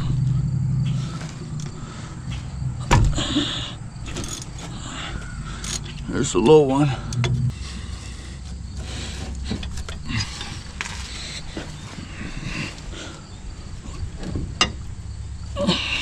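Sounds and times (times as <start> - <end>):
steady low hum: 0.0 - 16.0
metal clinks: 4.0 - 4.8.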